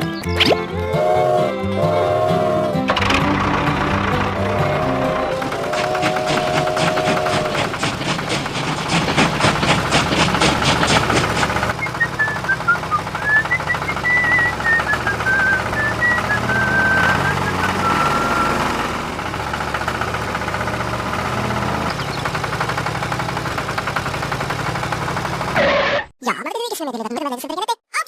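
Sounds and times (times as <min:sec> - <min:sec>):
small engine humming: 0:00.0 - 0:26.0
rapid even clatter: 0:02.9 - 0:17.8, 0:18.8 - 0:26.0.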